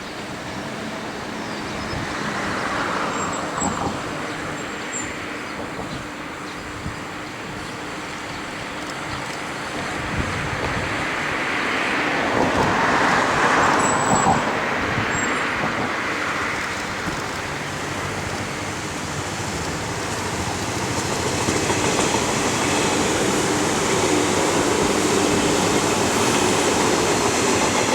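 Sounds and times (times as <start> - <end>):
train rail rumble: 0.0 - 27.9.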